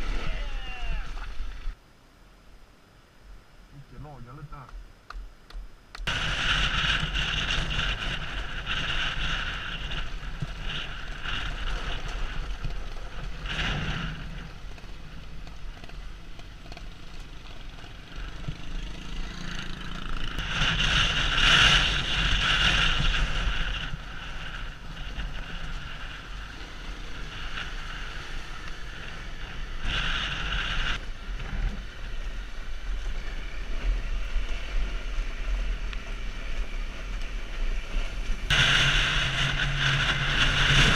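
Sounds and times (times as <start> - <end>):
motorcycle engine running: 5.9 - 40.9
wind buffeting microphone: 20.2 - 40.9.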